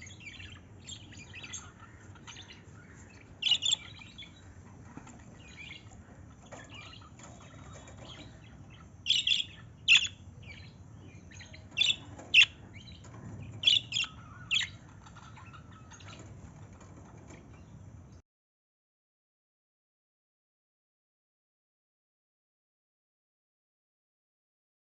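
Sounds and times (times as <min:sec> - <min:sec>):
birds chirping: 0:00.0 - 0:18.2.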